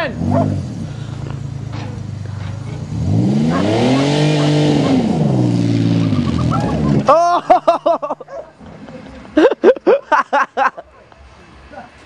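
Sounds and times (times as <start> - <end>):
car engine revving: 0.0 - 9.5.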